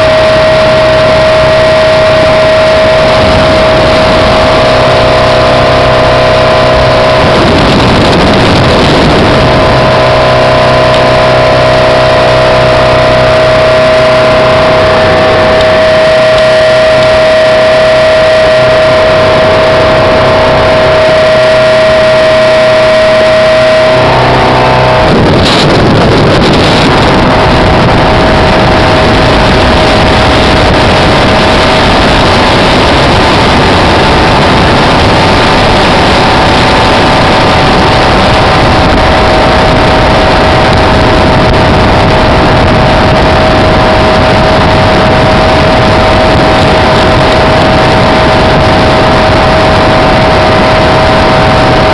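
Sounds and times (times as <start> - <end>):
speedboat engine whine: 0.0 - 51.9
wind and water rushing: 0.0 - 51.9.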